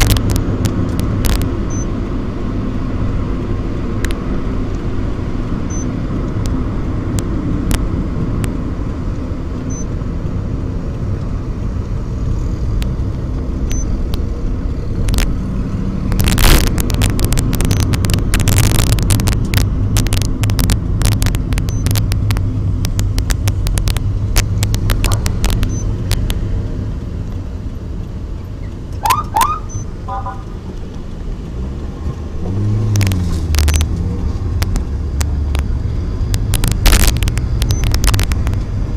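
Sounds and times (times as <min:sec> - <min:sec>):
road noise: 0:00.0 - 0:38.9
vehicle engines rumbling: 0:00.0 - 0:38.9
sharp clicks: 0:12.8 - 0:15.4, 0:16.1 - 0:27.5, 0:32.9 - 0:38.7.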